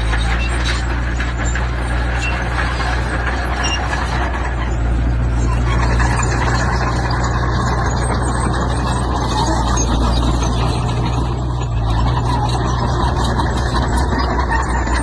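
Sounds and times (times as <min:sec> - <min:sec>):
heavy machinery diesel engine: 0:00.0 - 0:15.0.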